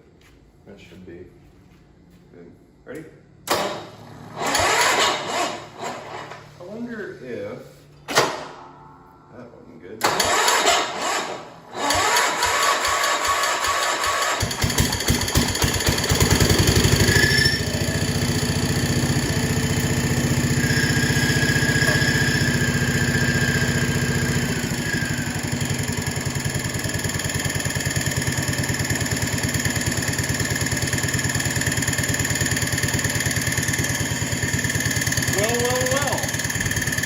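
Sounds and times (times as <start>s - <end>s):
garden tractor engine running: 11.8s - 37.0s.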